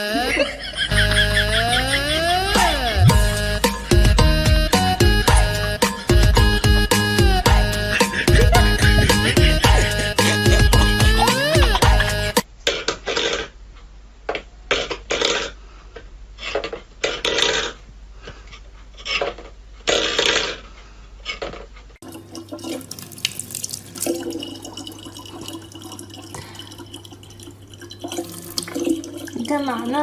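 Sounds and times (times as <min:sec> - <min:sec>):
water running steadily: 0:22.0 - 0:30.0
water splashing: 0:22.0 - 0:30.0.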